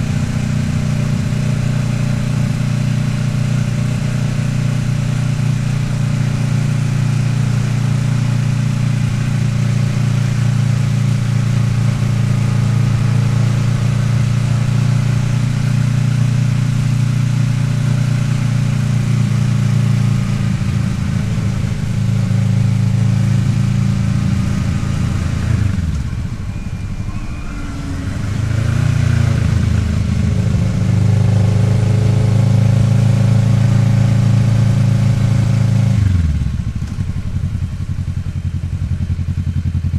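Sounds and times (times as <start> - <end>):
motorcycle engine cruising: 0.0 - 39.9
wind rush: 24.8 - 31.7.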